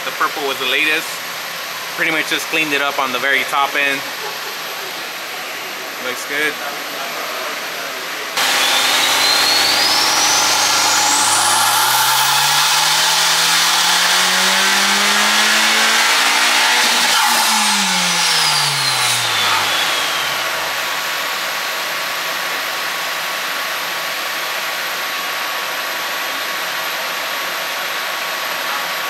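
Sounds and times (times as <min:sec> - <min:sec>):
car engine revving: 0:08.4 - 0:21.6
high whine: 0:08.4 - 0:21.6.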